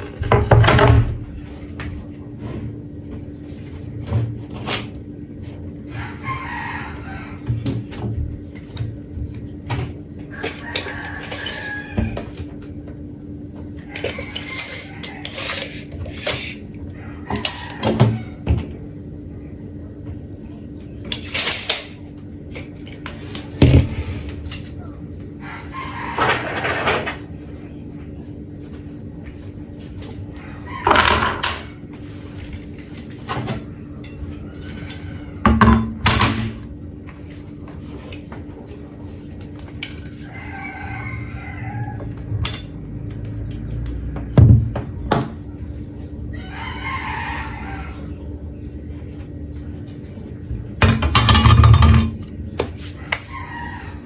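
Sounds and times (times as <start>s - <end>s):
tools knocking and clicking: 50.8s - 52.3s.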